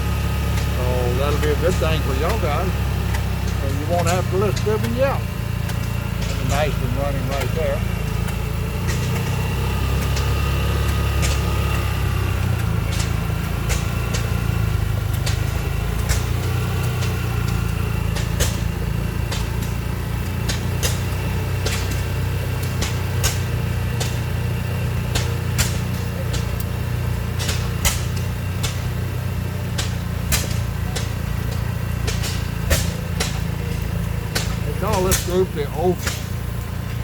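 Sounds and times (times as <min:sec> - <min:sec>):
engine exhaust pops: 0:00.0 - 0:37.0
low engine drone: 0:00.0 - 0:37.0.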